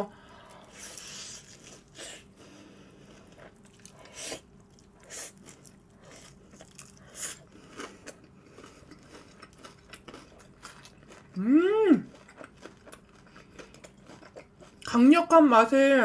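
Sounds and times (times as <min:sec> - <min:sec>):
chewing crispy fried chicken: 0:03.0 - 0:15.4.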